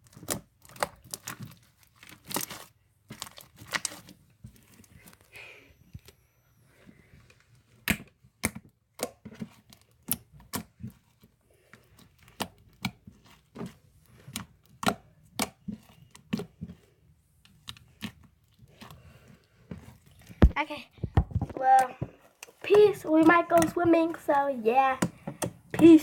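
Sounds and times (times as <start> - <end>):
slime squishing pops and clicks: 7.8 - 9.2.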